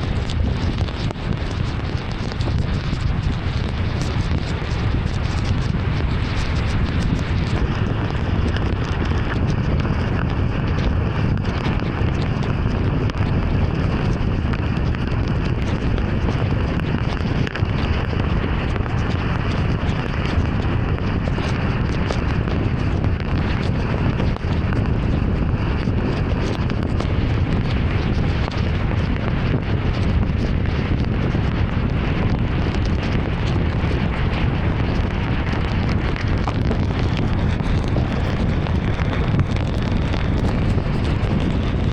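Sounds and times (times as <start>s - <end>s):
rain and tyres on wet road: 0.0s - 9.8s, 24.8s - 41.9s.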